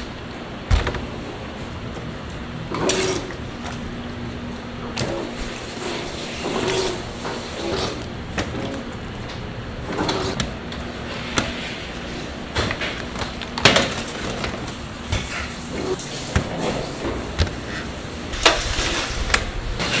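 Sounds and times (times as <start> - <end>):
steady background noise: 0.0 - 20.0
factory knocks and clanks: 0.6 - 3.3.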